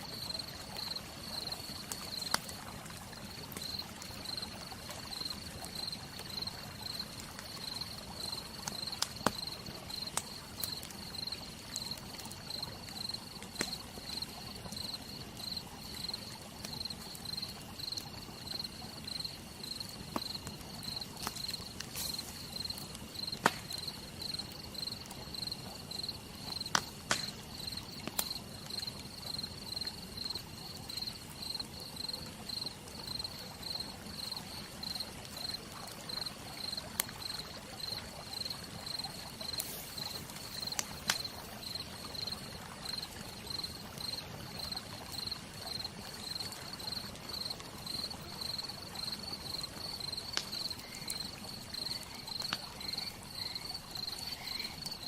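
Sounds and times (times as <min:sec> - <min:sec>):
campfire crackling: 0:00.0 - 0:55.0
crickets chirping: 0:00.1 - 0:02.4, 0:03.6 - 0:04.4, 0:05.1 - 0:55.0.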